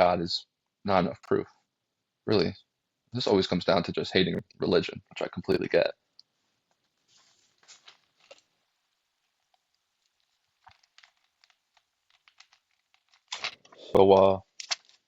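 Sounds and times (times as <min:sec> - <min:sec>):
rustling: 0:06.4 - 0:13.9.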